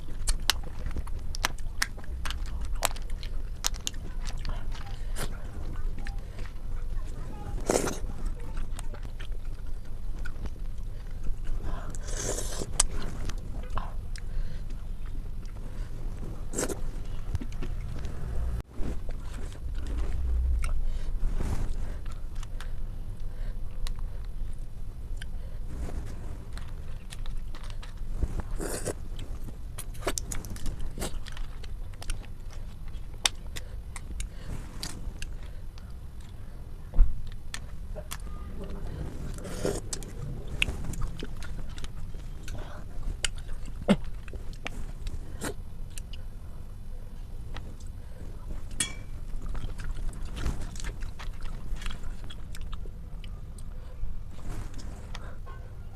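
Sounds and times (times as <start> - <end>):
small clicks and crunches: 0.0 - 12.0, 25.1 - 36.4
chewing and wet mouth sounds: 0.0 - 55.7.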